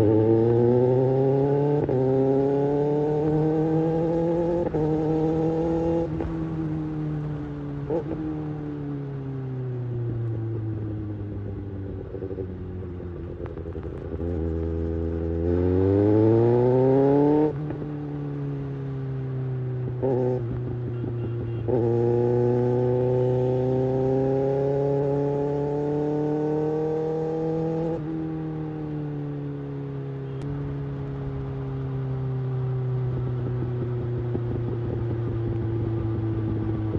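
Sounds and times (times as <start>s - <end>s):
motorcycle engine revving: 0.0s - 36.9s.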